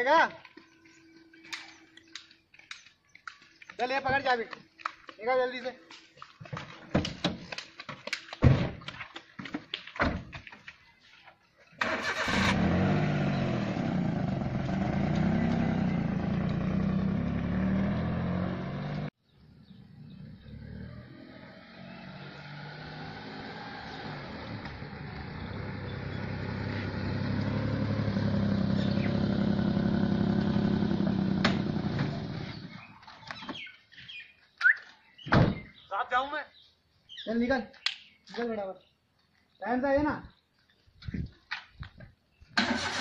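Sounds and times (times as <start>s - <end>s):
car engine cranking: 11.8s - 18.4s, 42.6s - 43.0s
car engine revving: 11.8s - 19.1s, 20.0s - 32.6s
car approaching: 11.8s - 33.0s.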